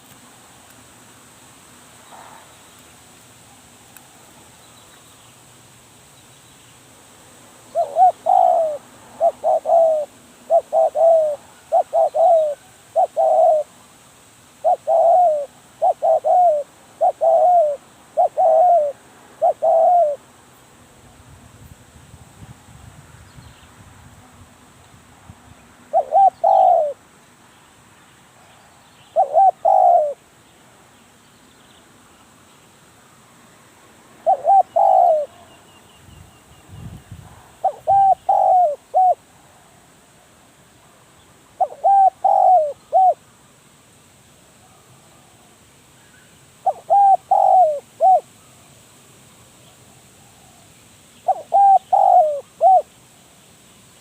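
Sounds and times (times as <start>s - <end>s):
dove cooing: 7.7s - 13.8s, 14.6s - 20.3s, 25.9s - 27.0s, 29.2s - 30.2s, 34.2s - 35.5s, 37.6s - 39.3s, 41.6s - 43.2s, 46.6s - 48.3s, 51.2s - 52.9s.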